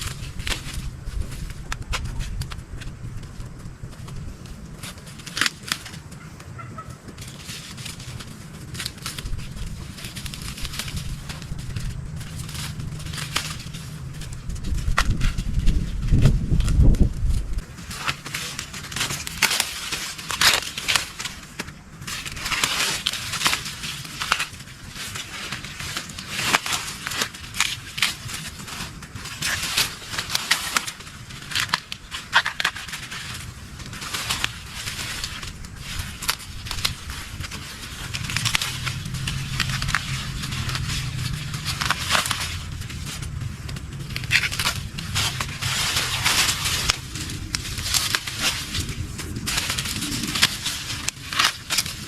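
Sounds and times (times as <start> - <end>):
dry leaves rustling and crackling: 0.0 - 52.0.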